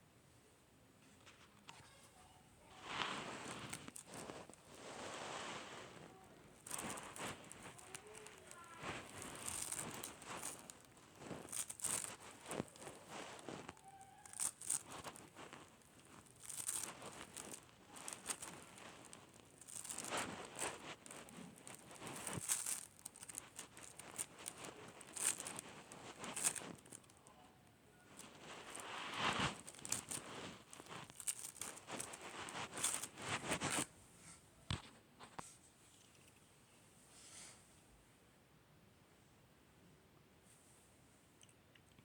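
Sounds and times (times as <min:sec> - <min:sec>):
slime crackling and popping: 0:03.0 - 0:27.2, 0:28.1 - 0:33.8.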